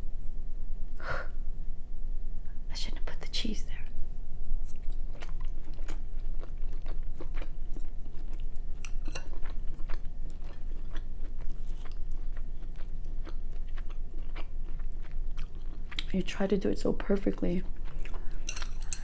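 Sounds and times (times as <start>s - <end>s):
low steady hum: 0.0s - 19.0s
chewing mouth sounds: 4.7s - 16.1s, 17.6s - 19.0s.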